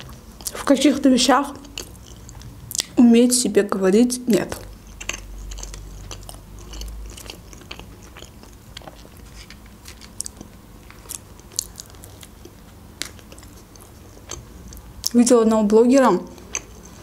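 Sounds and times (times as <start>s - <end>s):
person chewing food: 0.0s - 0.7s, 1.5s - 3.0s, 4.5s - 15.2s, 16.3s - 17.0s
wet mouth clicks and smacks: 1.8s - 3.0s.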